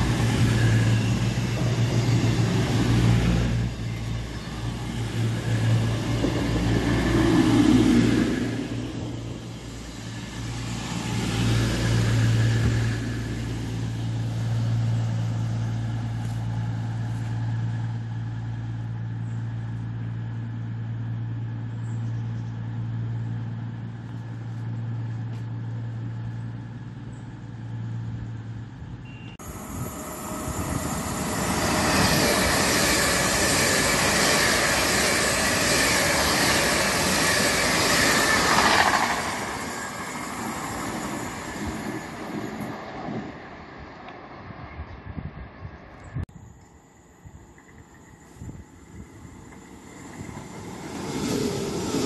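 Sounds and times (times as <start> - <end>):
high-speed train rushing past: 0.0 - 21.8, 22.6 - 52.0
diesel train engines droning: 0.0 - 44.9, 45.9 - 52.0.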